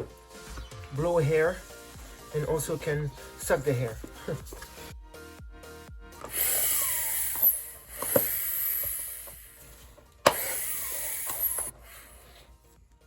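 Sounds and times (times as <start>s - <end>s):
air pump hissing: 6.2s - 12.5s.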